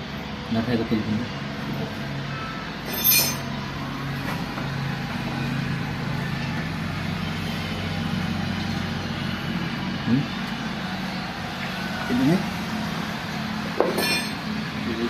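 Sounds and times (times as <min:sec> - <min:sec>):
engine humming: 0:00.0 - 0:15.0
sharp metal clink: 0:02.8 - 0:03.5, 0:13.8 - 0:14.4.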